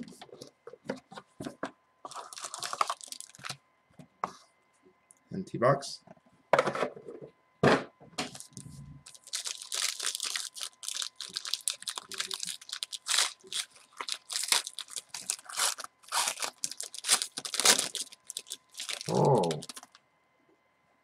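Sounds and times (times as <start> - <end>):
plastic wrapping tearing and crinkling: 2.1 - 3.6, 8.3 - 20.0.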